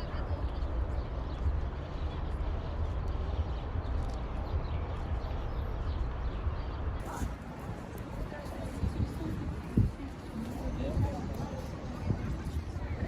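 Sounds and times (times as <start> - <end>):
faint voices: 7.0 - 13.0.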